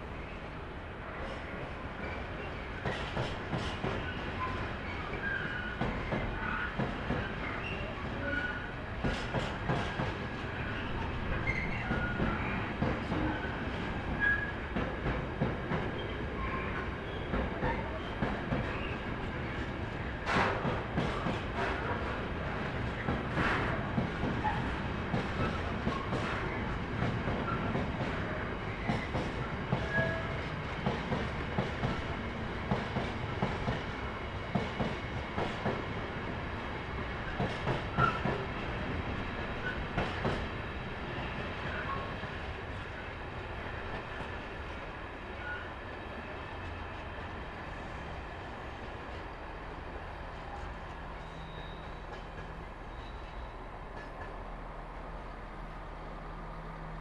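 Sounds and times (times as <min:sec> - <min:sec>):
train rumbling: 0:00.0 - 0:57.0
train wheels clicking over rail joints: 0:02.8 - 0:04.2, 0:09.0 - 0:10.2, 0:17.3 - 0:35.9, 0:37.2 - 0:38.5, 0:39.5 - 0:40.6.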